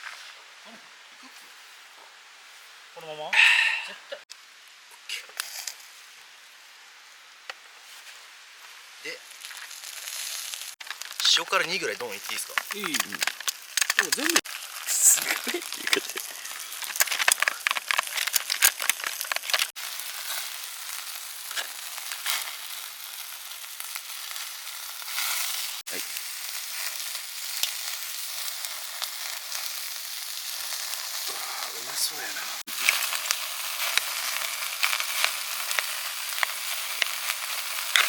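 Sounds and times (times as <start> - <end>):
food sizzling in a hot pan: 7.8 - 38.0
oil popping and crackling: 9.0 - 38.0.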